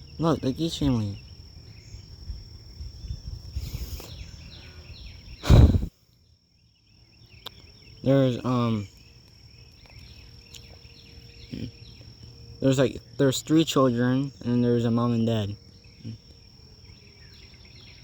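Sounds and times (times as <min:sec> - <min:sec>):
high-pitched insect drone: 0:00.0 - 0:05.9, 0:07.5 - 0:18.0
low rumbling noise: 0:05.1 - 0:05.9.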